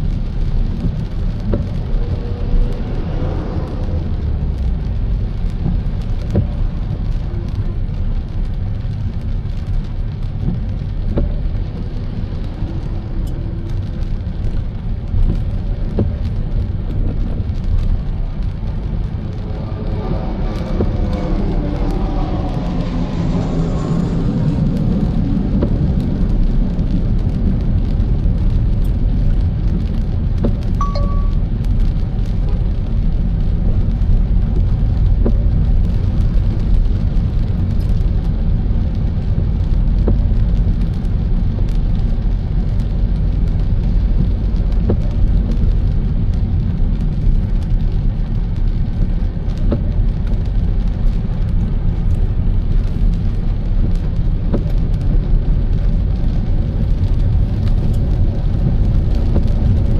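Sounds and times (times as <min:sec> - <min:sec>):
car driving on wet road: 0:00.0 - 0:59.9.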